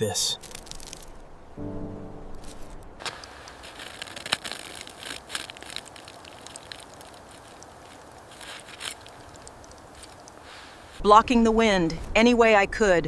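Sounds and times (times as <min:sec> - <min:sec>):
crackling and rustling: 0:00.0 - 0:01.6, 0:02.3 - 0:11.1.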